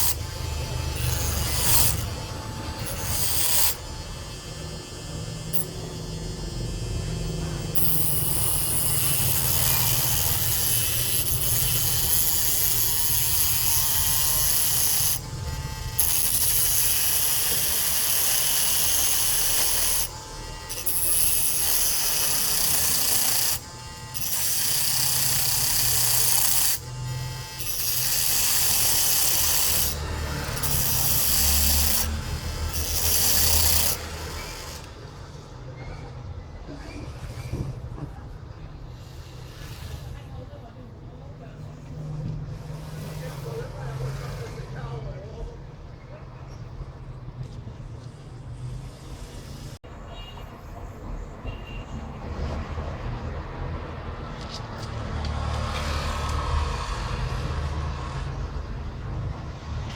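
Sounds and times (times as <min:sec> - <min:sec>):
abrasive scraping on hard surface: 0:41.8 - 0:45.0.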